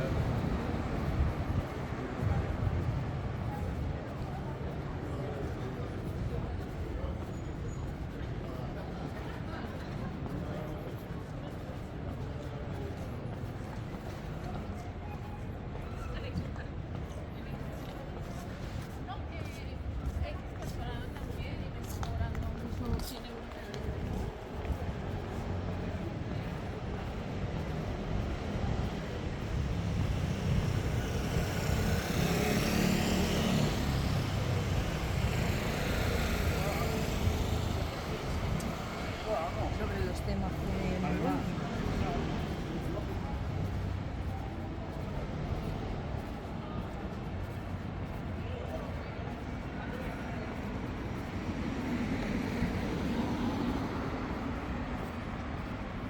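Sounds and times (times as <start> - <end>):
low traffic rumble: 0.0 - 56.0
vehicle engine and tyres passing: 24.7 - 56.0
vehicle passing: 29.6 - 43.7.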